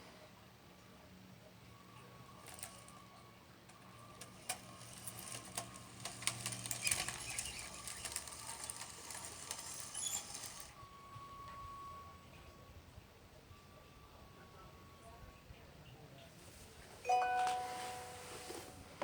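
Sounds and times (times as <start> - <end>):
small electric motors humming: 1.7 - 11.5
gravel rattling and trickling: 3.7 - 10.8.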